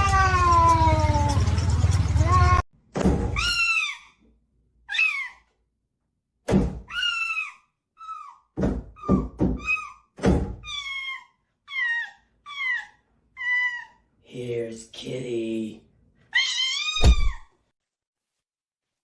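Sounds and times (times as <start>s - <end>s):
high-pitched squeaky calls: 3.4s - 4.2s, 4.9s - 5.4s, 6.9s - 8.4s, 9.0s - 14.0s
dull thumps: 8.6s - 10.6s.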